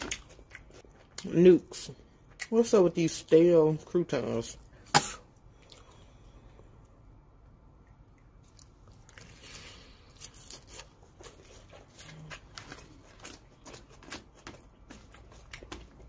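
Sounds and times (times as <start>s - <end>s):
crunchy chewing: 0.0s - 1.4s, 7.8s - 16.0s.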